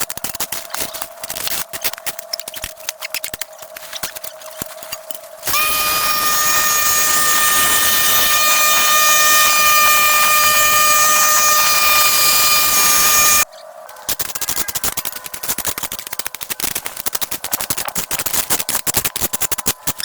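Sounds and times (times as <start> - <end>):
power tool whining: 5.4 - 13.5.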